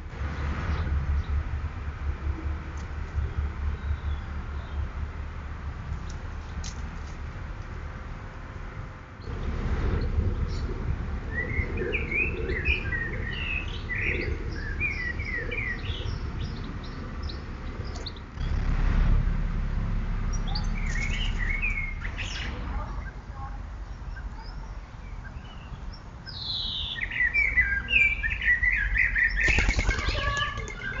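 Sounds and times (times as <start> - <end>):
low steady rumble: 0.0 - 25.9
small birds chirping: 10.0 - 18.4, 20.3 - 31.0.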